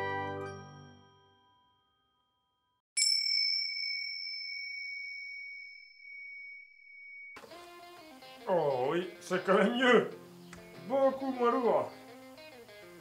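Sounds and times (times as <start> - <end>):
acoustic blues guitar music: 7.4 - 13.0.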